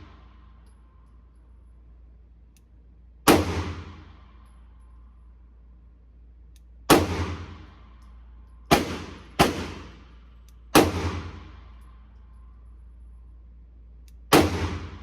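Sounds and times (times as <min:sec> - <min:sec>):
pistol shots echoing: 0:03.3 - 0:04.1, 0:06.9 - 0:07.7, 0:08.7 - 0:10.0, 0:10.7 - 0:11.6, 0:14.3 - 0:15.0.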